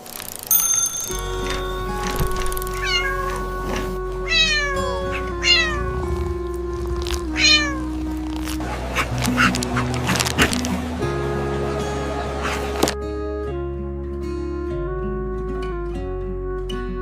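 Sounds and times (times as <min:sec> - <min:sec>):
background music with held notes: 0:01.1 - 0:17.0
cat meowing: 0:02.7 - 0:08.0.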